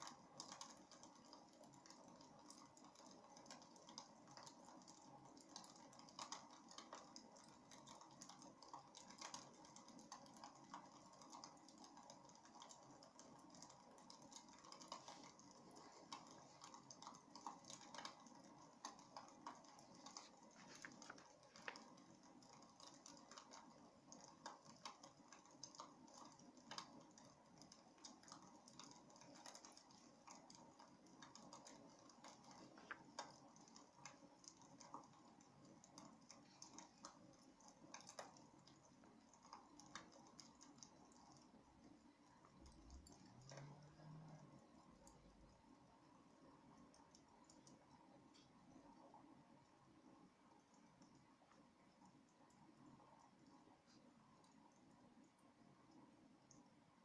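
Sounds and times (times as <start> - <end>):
wood fire crackling: 0.0 - 43.3
soft steady hiss: 0.0 - 57.0.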